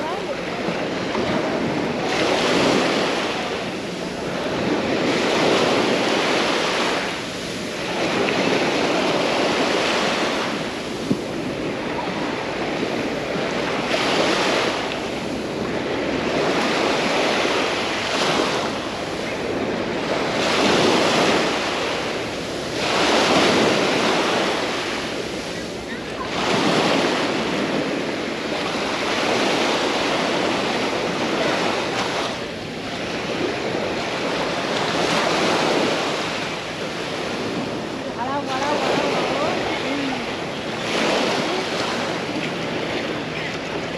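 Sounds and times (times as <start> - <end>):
small waves breaking on sand: 0.0 - 43.9.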